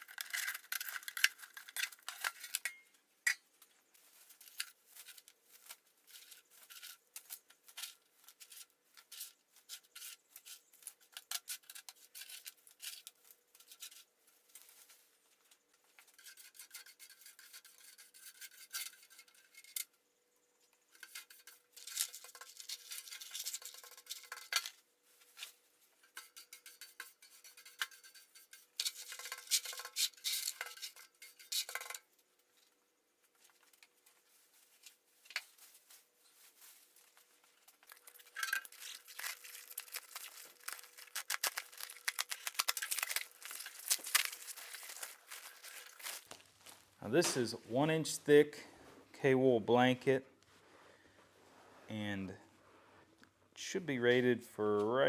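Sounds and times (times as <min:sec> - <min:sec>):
hand scraping and rubbing: 0:33.4 - 0:49.1, 0:50.4 - 0:53.2.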